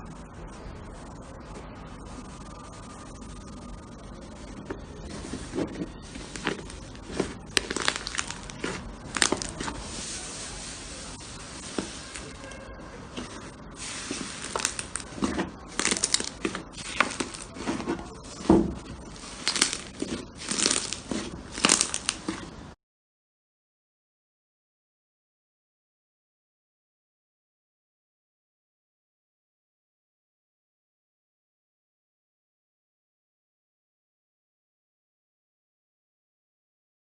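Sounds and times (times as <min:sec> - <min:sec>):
hands squishing slime: 0:05.1 - 0:12.4, 0:13.2 - 0:22.6.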